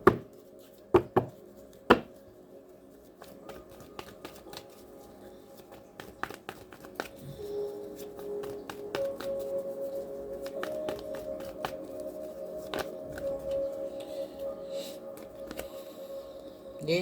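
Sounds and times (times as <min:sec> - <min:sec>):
faint ambient music: 0:00.0 - 0:17.0
cards tapping and snapping: 0:01.0 - 0:02.2, 0:03.2 - 0:04.8, 0:05.6 - 0:09.5, 0:10.4 - 0:13.6, 0:15.1 - 0:15.7.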